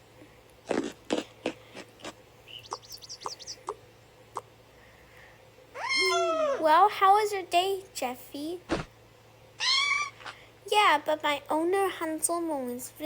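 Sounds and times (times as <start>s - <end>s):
high rising chirps: 2.5s - 3.7s.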